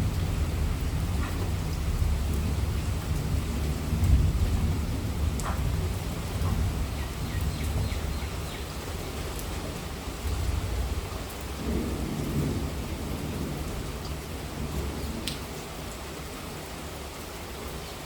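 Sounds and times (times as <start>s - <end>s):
low rumble of thunder: 0.0s - 16.0s
heavy rain falling: 0.0s - 18.0s
raindrop ticks: 0.1s - 9.6s, 15.2s - 15.6s.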